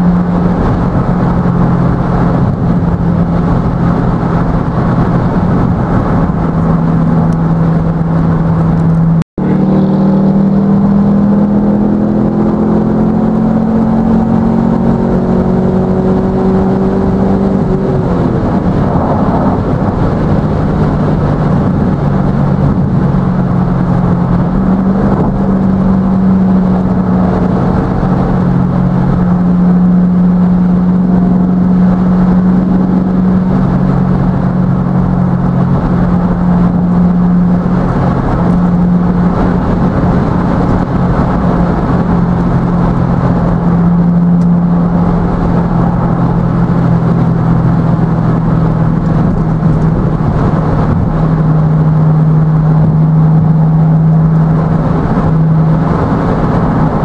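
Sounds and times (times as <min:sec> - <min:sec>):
car engine droning: 0:00.0 - 0:57.0
road and tyre noise: 0:00.0 - 0:57.0.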